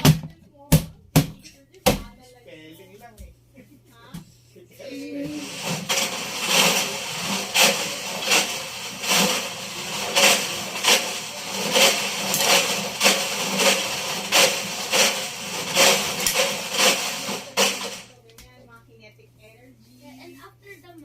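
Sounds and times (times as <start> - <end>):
washing machine running: 4.8 - 18.2
metal objects clanking in a drum: 5.3 - 18.1.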